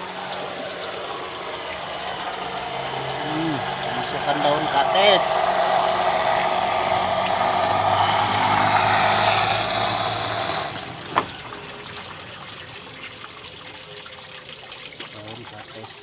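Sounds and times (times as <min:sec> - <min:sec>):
rushing water: 0:00.0 - 0:16.0
water pump humming: 0:00.0 - 0:16.0.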